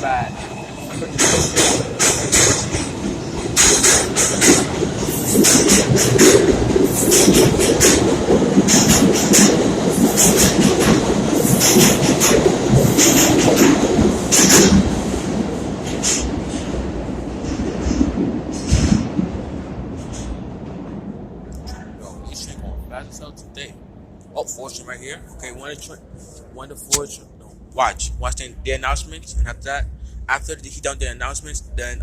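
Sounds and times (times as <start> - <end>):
wheels clacking over rail joints: 0.0 - 22.0
subway train rumbling: 0.0 - 32.0.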